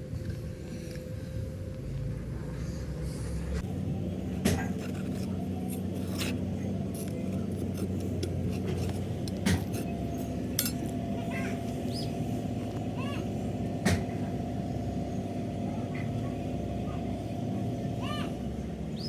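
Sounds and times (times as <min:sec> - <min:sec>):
factory machinery humming: 0:00.0 - 0:19.0
metallic clicks and knocks: 0:10.5 - 0:10.9.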